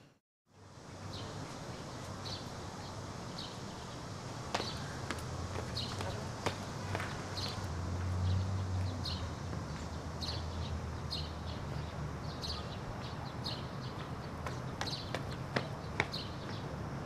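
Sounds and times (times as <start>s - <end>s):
small birds chirping: 1.0s - 17.0s.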